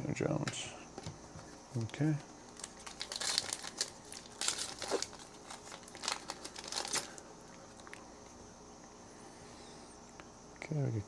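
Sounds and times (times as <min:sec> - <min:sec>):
wrapper crinkling and tearing: 0:01.7 - 0:07.2.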